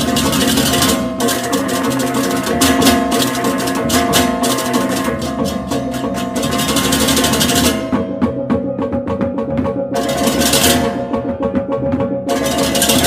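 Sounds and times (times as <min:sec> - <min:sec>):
gamelan music: 0:00.0 - 0:13.0.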